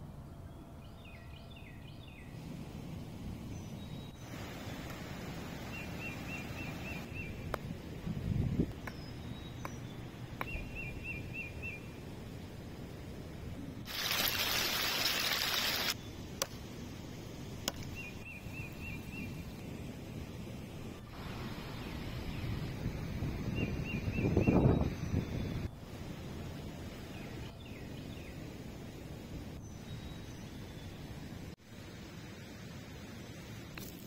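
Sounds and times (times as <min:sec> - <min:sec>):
songbird chirping: 0:00.0 - 0:02.4, 0:05.6 - 0:07.6, 0:08.6 - 0:12.3, 0:23.5 - 0:25.7, 0:29.6 - 0:31.3
outdoor background: 0:00.0 - 0:34.0.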